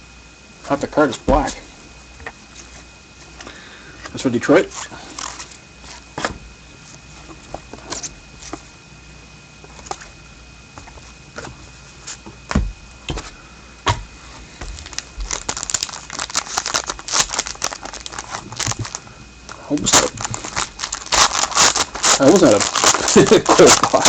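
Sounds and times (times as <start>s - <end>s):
pack wrapper crinkling: 4.7s - 5.5s, 14.7s - 24.0s.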